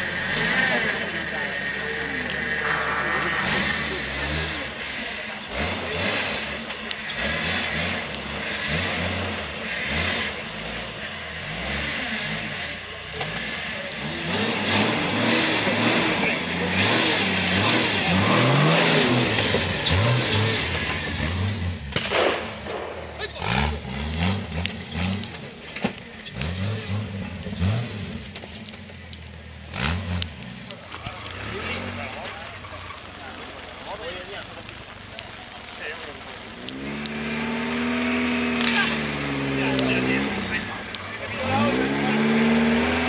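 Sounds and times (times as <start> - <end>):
off-road engine revving: 0.0 - 43.0.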